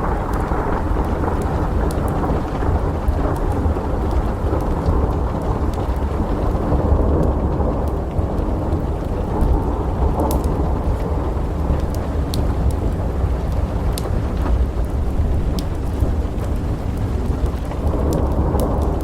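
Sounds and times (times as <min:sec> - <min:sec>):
low rumble of thunder: 0:00.0 - 0:19.0
steady rain: 0:00.0 - 0:19.0
fireplace crackling pops: 0:07.2 - 0:19.0.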